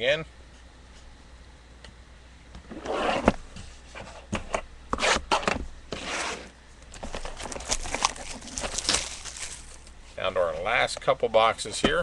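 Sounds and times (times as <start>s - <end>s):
packaging rustling and scraping: 5.0s - 10.0s
packaging tearing: 7.0s - 9.9s.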